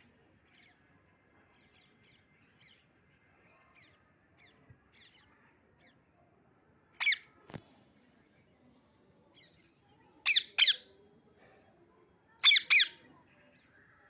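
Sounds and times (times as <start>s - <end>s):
parrot chirping: 7.0s - 7.2s, 10.3s - 10.8s, 12.4s - 13.0s
parrot squawk: 7.0s - 7.2s, 10.3s - 10.9s, 12.4s - 13.0s.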